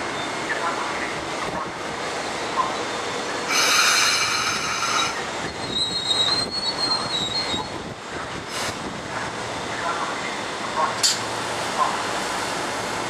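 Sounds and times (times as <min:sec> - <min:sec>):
train wheels rumbling on rail: 0:00.0 - 0:13.0
high-pitched metallic squeal: 0:03.5 - 0:07.7.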